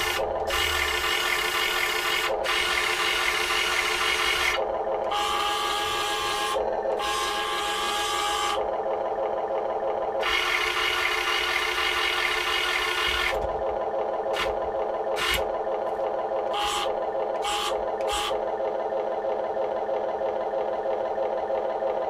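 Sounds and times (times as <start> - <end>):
simulated engine from small speaker: 0.0 - 22.0.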